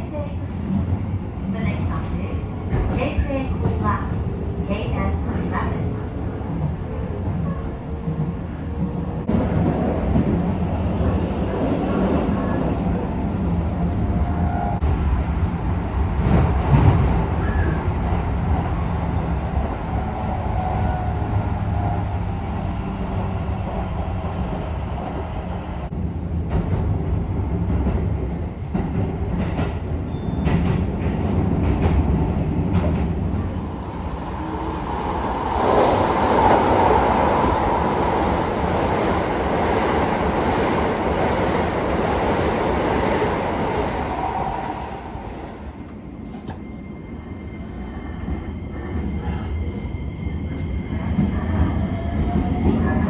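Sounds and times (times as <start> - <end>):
train wheels rumbling on rail: 0.0 - 53.0
loud rushing noise: 33.4 - 45.6.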